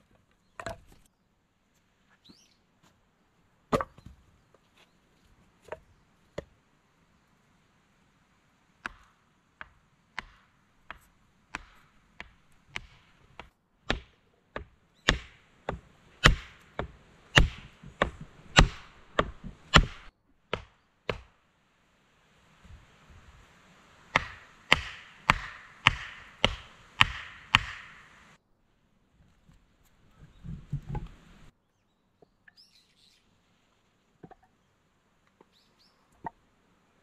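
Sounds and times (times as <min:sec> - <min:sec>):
chopping wood log: 0:03.7 - 0:04.1, 0:08.8 - 0:21.3, 0:24.1 - 0:28.2.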